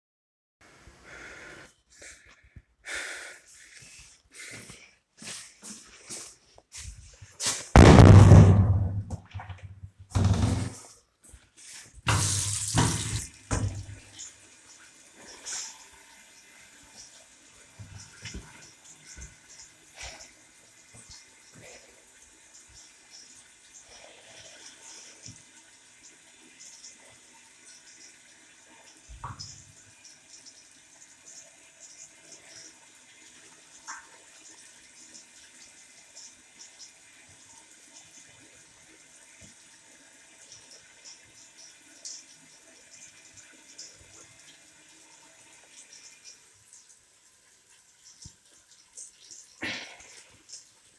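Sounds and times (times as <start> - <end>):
tap water running into sink: 7.4 - 11.4, 12.0 - 50.9
low thump: 7.8 - 9.6
loud knock: 7.8 - 10.8.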